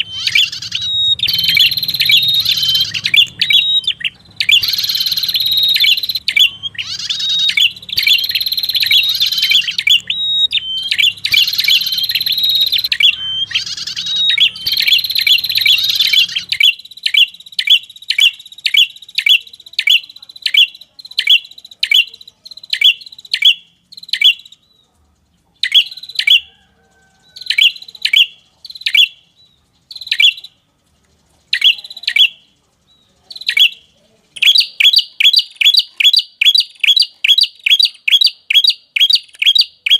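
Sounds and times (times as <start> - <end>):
sharp falling bird chirps: 0.0 - 20.7
bird song: 0.0 - 39.9.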